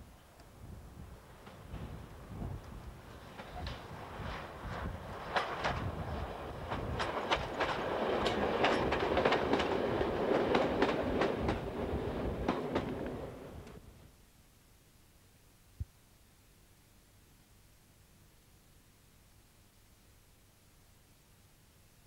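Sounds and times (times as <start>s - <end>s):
railcar passing with rushing noise: 1.0s - 13.8s
wheels clicking over rail joints: 5.2s - 11.8s.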